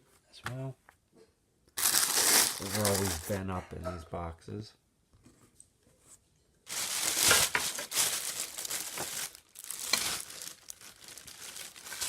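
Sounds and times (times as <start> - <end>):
packaging crinkling and rustling: 1.8 - 3.4, 6.7 - 12.0.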